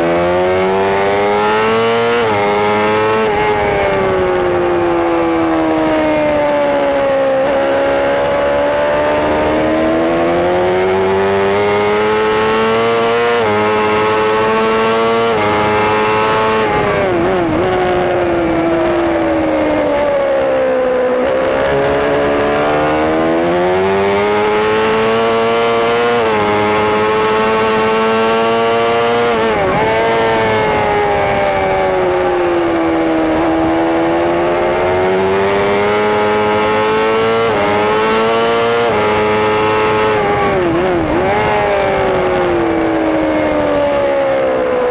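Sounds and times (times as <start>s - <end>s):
motorcycle engine revving: 0.0s - 44.9s
wind rush: 14.6s - 24.5s, 27.7s - 35.8s, 38.8s - 44.9s.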